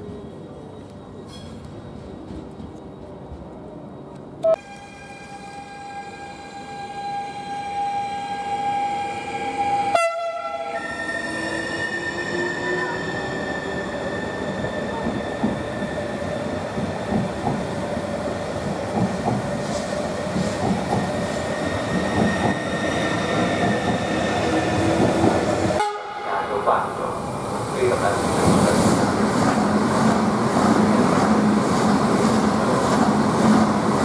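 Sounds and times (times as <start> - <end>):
train wheels rumbling and clattering: 1.2 - 4.4, 13.8 - 25.8
train horn: 4.4 - 10.9, 25.8 - 26.3.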